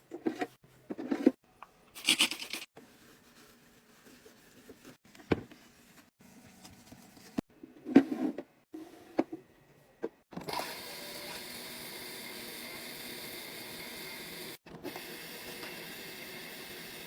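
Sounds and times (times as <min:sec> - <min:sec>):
soft rustling: 0:02.8 - 0:07.4.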